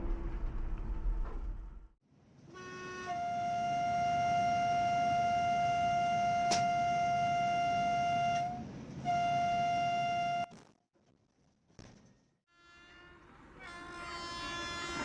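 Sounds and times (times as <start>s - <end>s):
horn blasts: 2.5s - 10.5s.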